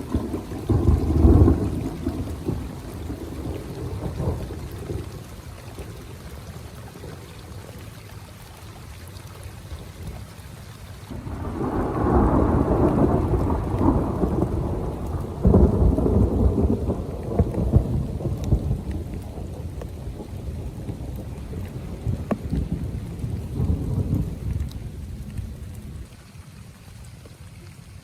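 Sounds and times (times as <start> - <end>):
roll of thunder: 0.0 - 5.1, 11.1 - 25.3
heavy rain: 0.0 - 28.0.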